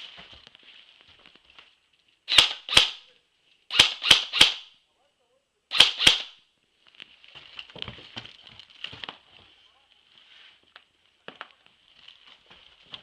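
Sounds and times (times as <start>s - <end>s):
airsoft gun shots: 2.3s - 3.0s, 3.7s - 4.7s, 5.7s - 6.4s.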